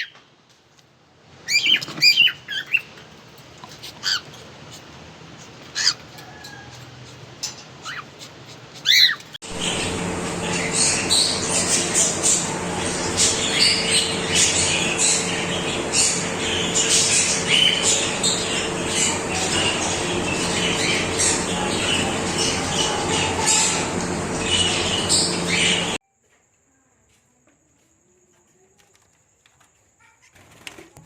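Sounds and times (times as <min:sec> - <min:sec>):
parrots squawking and chirping: 0:01.5 - 0:26.0
steady hum: 0:09.4 - 0:26.0.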